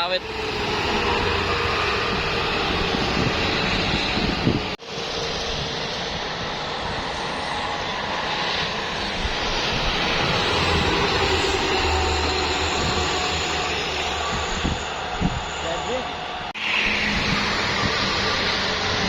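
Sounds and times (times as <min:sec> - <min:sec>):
truck engine drone: 0:08.8 - 0:19.0.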